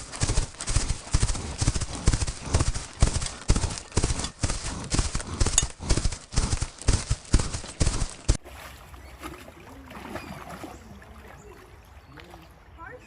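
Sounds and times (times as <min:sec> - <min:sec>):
hooves clip-clopping on hard ground: 0:00.0 - 0:08.4.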